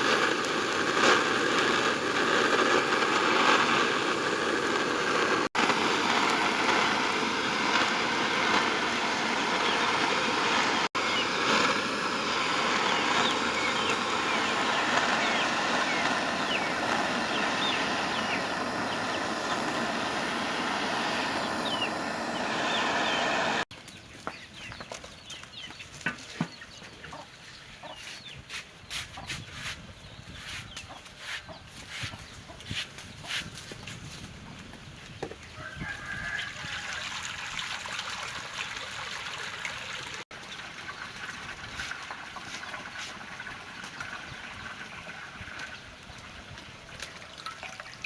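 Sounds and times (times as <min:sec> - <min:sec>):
loud steady rushing noise: 0:00.0 - 0:23.6
chickens clucking: 0:24.2 - 0:33.5, 0:40.9 - 0:46.7.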